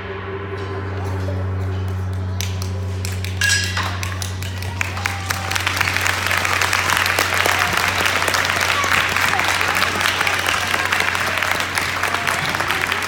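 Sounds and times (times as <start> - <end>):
ringing metallic strike: 0.0 - 4.9
steady low hum: 0.0 - 8.8
audience applause: 2.4 - 13.0.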